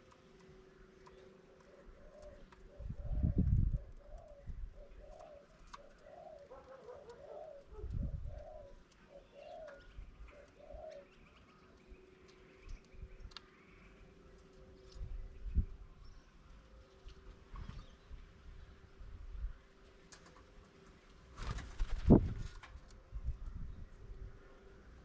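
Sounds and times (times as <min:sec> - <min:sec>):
birds chirping: 0:00.0 - 0:19.0
dove cooing: 0:01.1 - 0:11.3.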